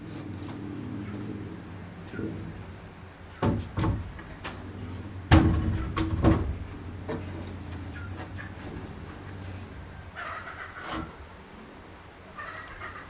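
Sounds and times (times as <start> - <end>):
irregular knocks and thumps: 3.4 - 9.4.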